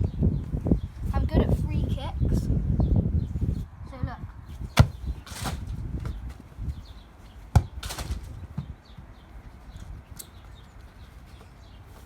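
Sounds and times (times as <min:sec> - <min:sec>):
football kick thud: 0:04.8 - 0:06.2, 0:07.5 - 0:08.7.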